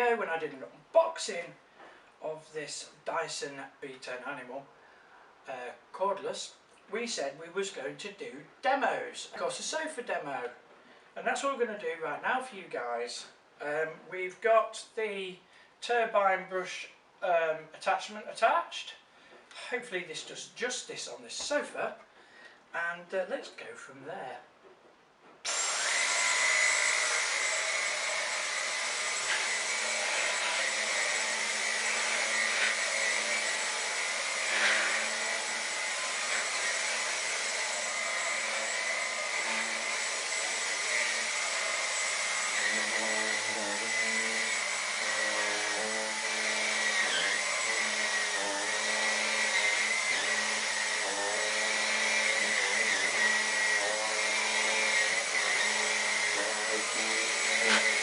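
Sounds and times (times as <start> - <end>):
cordless vacuum motor whine: 25.5 - 45.0.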